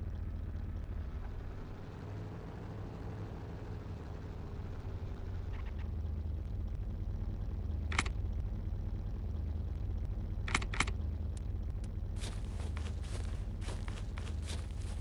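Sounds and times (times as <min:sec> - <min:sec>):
vehicle engine idling: 0:00.0 - 0:15.0
sharp clicks: 0:07.9 - 0:08.2, 0:10.4 - 0:11.4
footsteps: 0:12.2 - 0:15.0.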